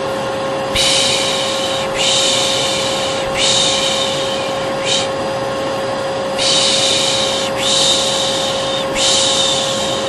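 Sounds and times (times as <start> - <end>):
vacuum cleaner running: 0.0 - 10.0
person shushing: 0.7 - 5.2, 6.4 - 10.0.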